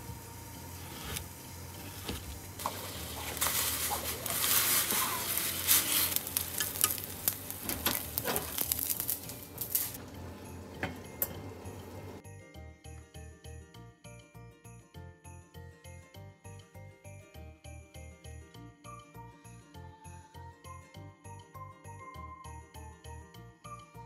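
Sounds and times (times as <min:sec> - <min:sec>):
food sizzling in a hot pan: 0:00.0 - 0:12.2
utensil clicking against pan: 0:06.2 - 0:09.1.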